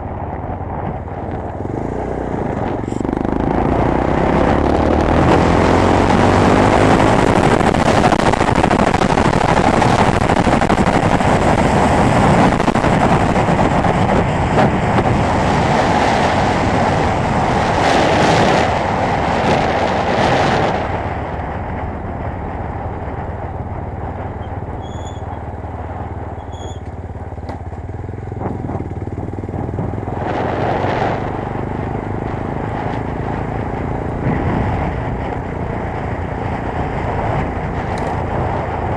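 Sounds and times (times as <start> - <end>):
motorcycle engine at speed: 0.0 - 38.9
wind rush: 0.0 - 38.9.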